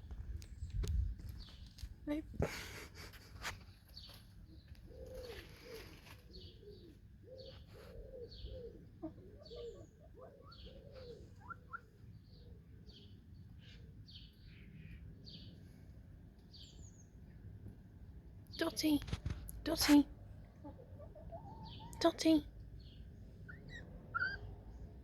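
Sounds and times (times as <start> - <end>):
wild birds chirping: 3.7 - 17.4, 20.4 - 25.0
hens clucking: 19.9 - 22.4.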